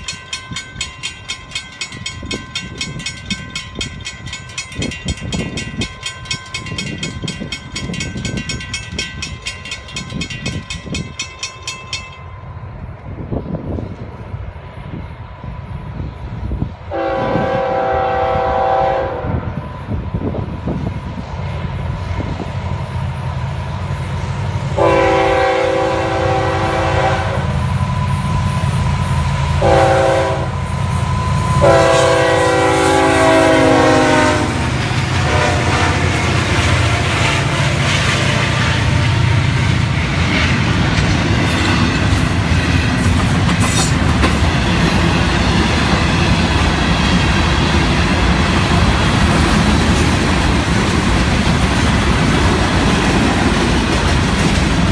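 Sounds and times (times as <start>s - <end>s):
locomotive air horn blasts: 16.9s - 19.5s, 24.8s - 27.6s, 29.6s - 30.7s, 31.4s - 37.6s.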